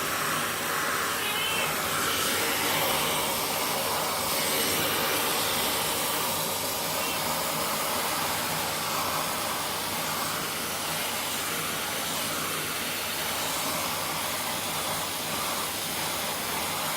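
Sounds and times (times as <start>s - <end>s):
vacuum cleaner running: 0.0s - 16.9s.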